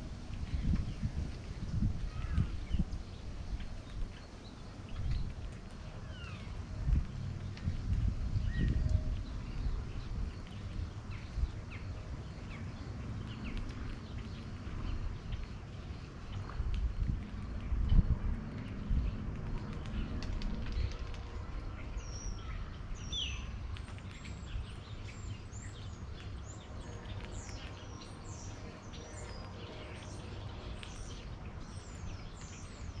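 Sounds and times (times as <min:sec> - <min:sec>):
low outdoor rumble: 0:00.0 - 0:33.0
small birds chirping: 0:00.0 - 0:33.0.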